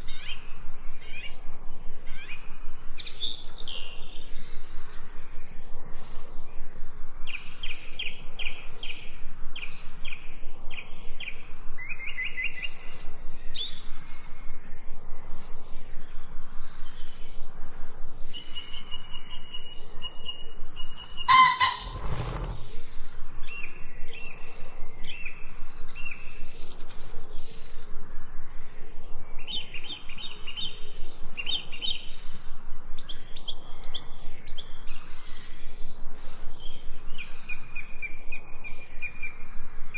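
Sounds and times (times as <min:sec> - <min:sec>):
small birds chirping: 0:21.1 - 0:22.7
loud brief bird call: 0:21.2 - 0:22.6.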